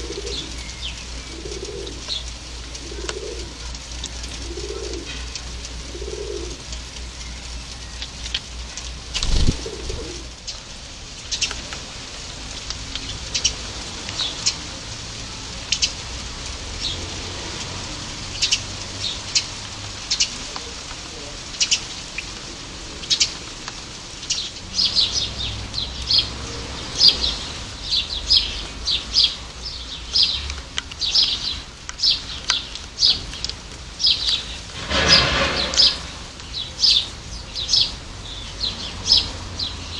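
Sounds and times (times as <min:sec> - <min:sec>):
pigeon cooing: 0:00.0 - 0:06.7, 0:09.2 - 0:10.4
garden birds chirping: 0:00.0 - 0:39.9.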